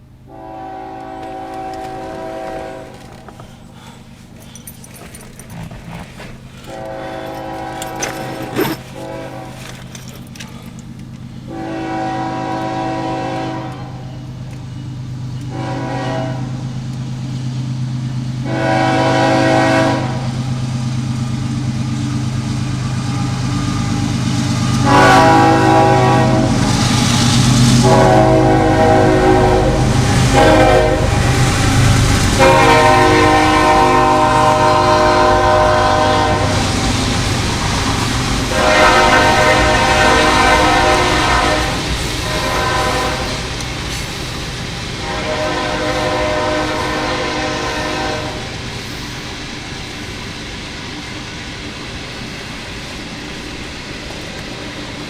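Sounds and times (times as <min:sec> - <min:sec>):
locomotive air horn blasts: 0:00.3 - 0:03.6, 0:06.6 - 0:10.2, 0:11.5 - 0:14.3, 0:15.5 - 0:16.6, 0:18.4 - 0:20.4, 0:24.8 - 0:27.1, 0:27.8 - 0:37.0, 0:38.5 - 0:43.6, 0:45.0 - 0:48.6.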